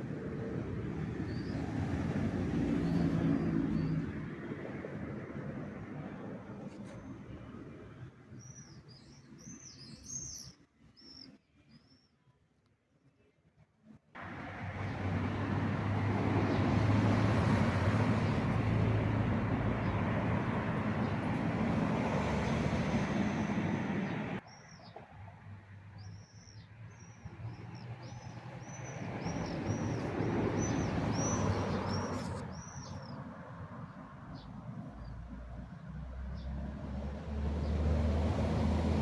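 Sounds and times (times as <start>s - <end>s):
vehicle rumbling past: 0.0s - 6.5s, 14.2s - 24.4s, 27.3s - 39.0s
vehicle engine rumble: 14.2s - 24.4s, 27.3s - 39.0s.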